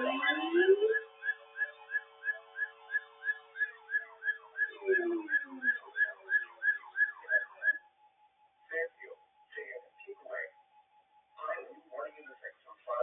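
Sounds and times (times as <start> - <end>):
short falling electronic chirps: 0.0 - 7.8
steady low electronic tone: 0.0 - 13.0.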